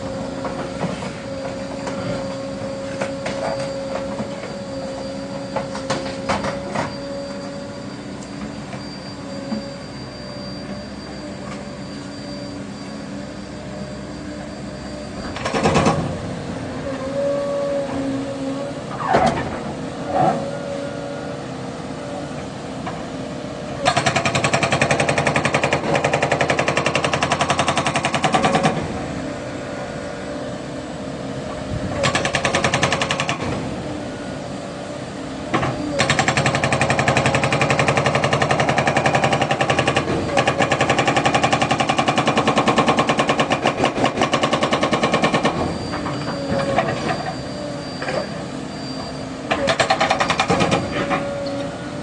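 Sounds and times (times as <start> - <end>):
excavator diesel engine running: 0.0 - 52.0
hydraulic breaker hammering: 49.5 - 51.3.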